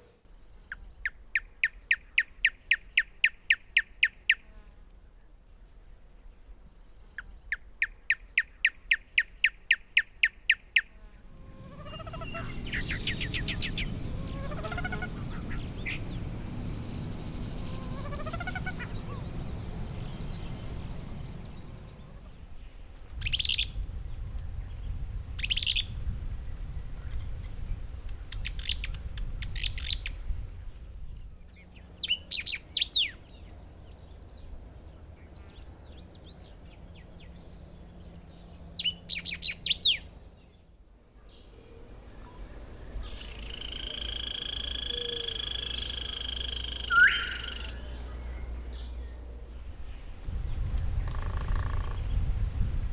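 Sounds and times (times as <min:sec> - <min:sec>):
birds singing: 0:06.9 - 0:52.5
background hiss: 0:10.9 - 0:52.9
high bird calls: 0:11.3 - 0:23.8, 0:31.6 - 0:40.2, 0:41.2 - 0:52.3
low rising bird whistles: 0:11.5 - 0:22.2, 0:41.7 - 0:48.9.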